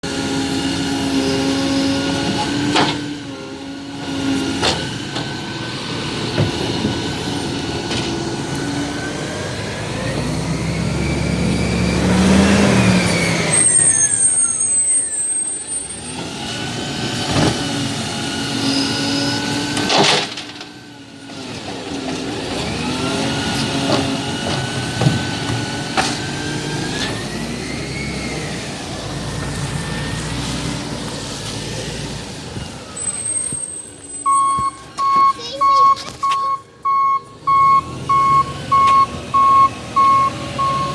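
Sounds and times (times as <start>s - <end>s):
garbage truck engine revving: 0.0s - 40.9s
high squeal: 10.6s - 16.2s, 32.6s - 34.9s.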